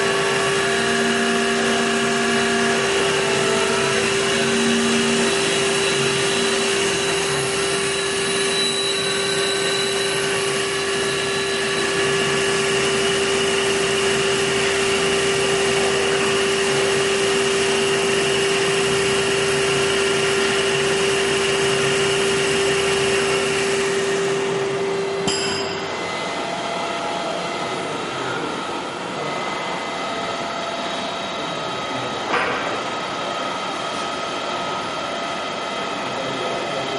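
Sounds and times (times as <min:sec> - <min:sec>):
wood lathe humming: 0:00.0 - 0:28.8.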